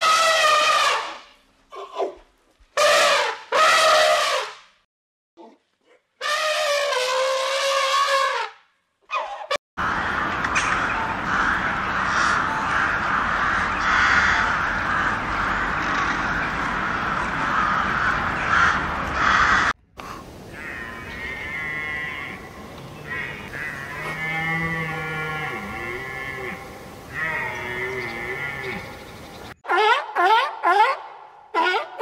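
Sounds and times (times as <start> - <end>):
crows cawing in chorus: 11.2 - 15.8, 16.9 - 19.8, 20.5 - 28.9
wavering bird calls: 20.5 - 30.0.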